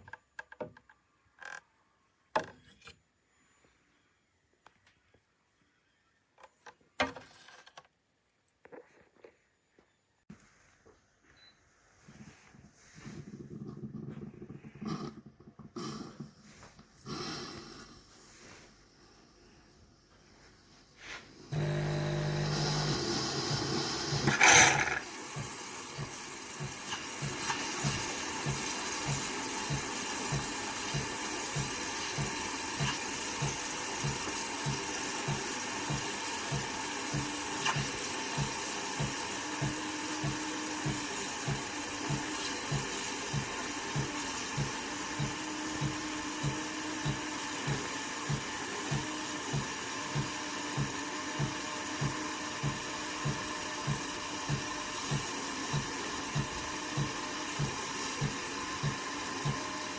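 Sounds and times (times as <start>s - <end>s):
coffee machine hissing and pulsing: 21.3s - 59.9s
coffee machine hum: 21.4s - 59.9s
coffee machine loud burst: 21.6s - 29.2s.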